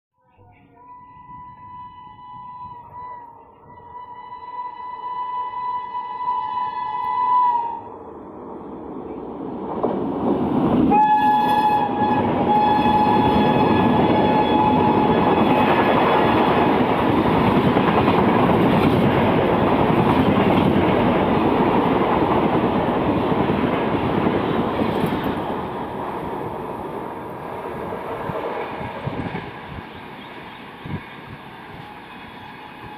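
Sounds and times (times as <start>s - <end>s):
train horn long blast: 0.8s - 8.0s, 10.9s - 16.7s, 31.7s - 32.9s
train coaches rattling over rails: 8.7s - 32.9s.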